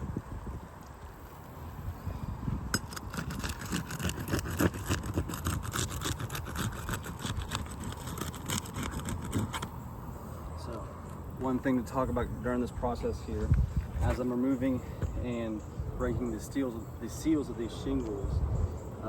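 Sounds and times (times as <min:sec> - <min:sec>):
crackling clicks and scrapes: 0:02.7 - 0:09.8.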